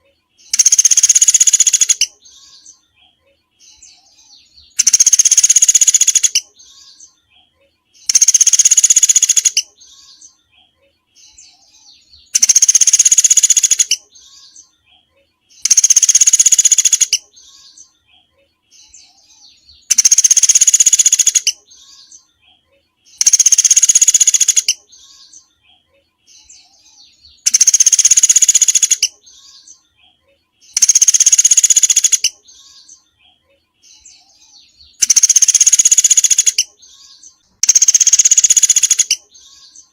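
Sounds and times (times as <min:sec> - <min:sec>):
faint bird twittering: 0:00.0 - 0:39.9.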